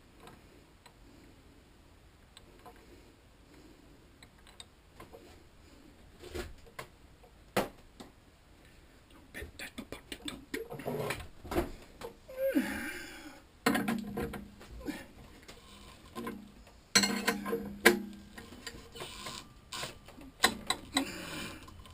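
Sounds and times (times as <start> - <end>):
metal tools clicking and knocking: 17.0 - 18.8.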